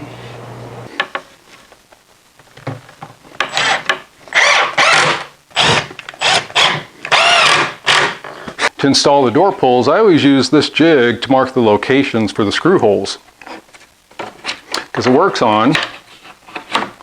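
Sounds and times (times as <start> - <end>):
screwdriver driving screws: 3.4 - 8.2.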